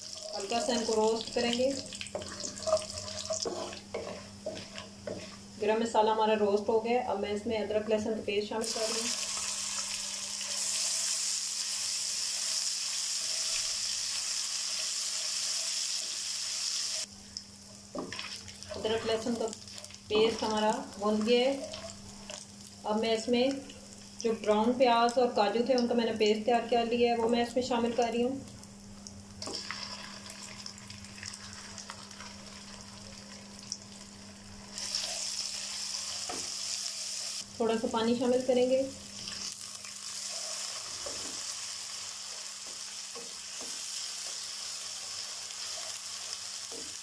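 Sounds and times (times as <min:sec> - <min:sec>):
spices sizzling in hot oil: 0:00.0 - 0:06.7, 0:08.6 - 0:47.0
wooden spatula stirring: 0:00.2 - 0:06.0, 0:17.9 - 0:20.7.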